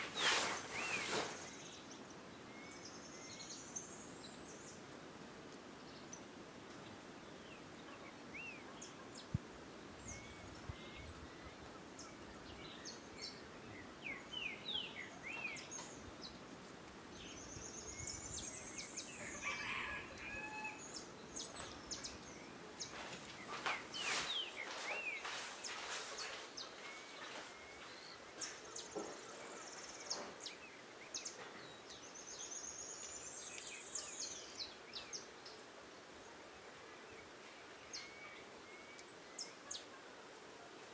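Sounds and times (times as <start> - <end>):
birds chirping: 0.0 - 4.8, 17.1 - 35.7.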